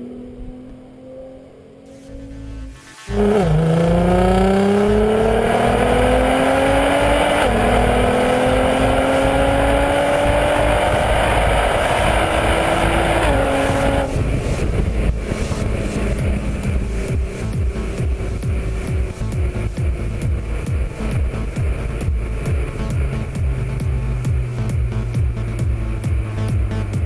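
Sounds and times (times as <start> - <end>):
car engine accelerating hard: 0.0 - 27.0.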